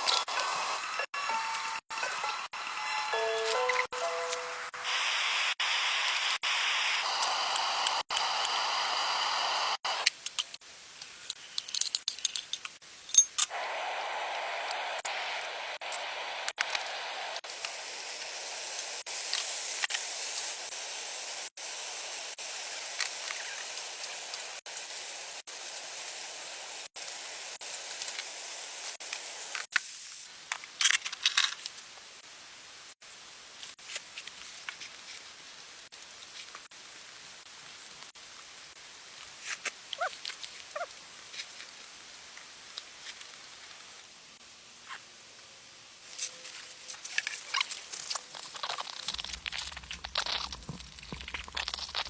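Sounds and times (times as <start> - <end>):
steady stove hiss: 4.4 - 30.7
clinks and light taps: 11.6 - 13.5.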